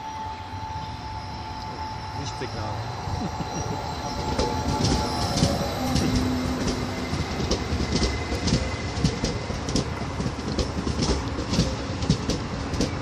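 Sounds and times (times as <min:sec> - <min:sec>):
train rumble: 0:00.0 - 0:13.0
train wheels clicking over rail joints: 0:03.2 - 0:13.0.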